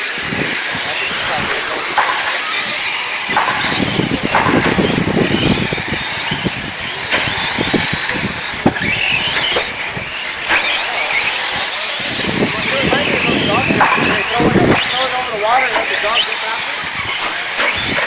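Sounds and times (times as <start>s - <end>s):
rc truck motors whining: 0.0s - 18.0s
tyres rattling: 0.0s - 18.0s
sharp knocks from landings: 1.9s - 5.7s, 13.5s - 15.0s.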